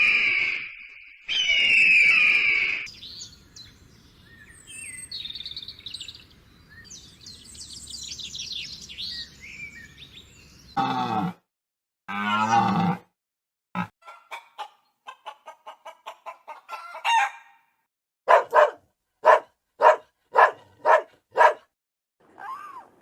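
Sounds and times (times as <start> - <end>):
chickens clucking: 14.0 - 17.3
chicken drawn-out call: 14.0 - 17.6.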